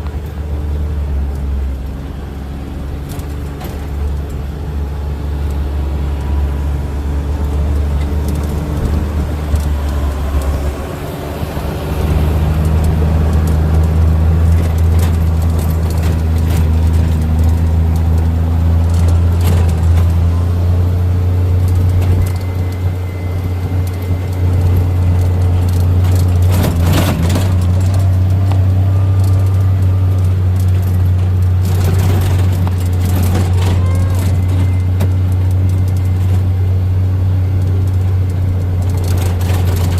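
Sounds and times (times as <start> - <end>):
vehicle engine drone: 0.0 - 39.9
rattle: 7.2 - 11.1, 12.0 - 39.9.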